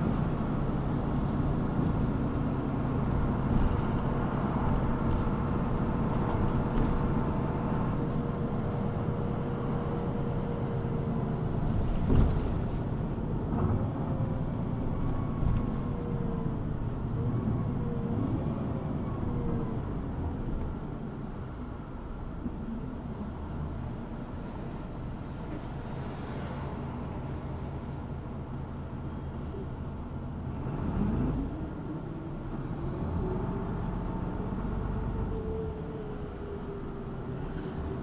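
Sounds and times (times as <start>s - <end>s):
bus engine and road rumble: 0.0s - 38.0s.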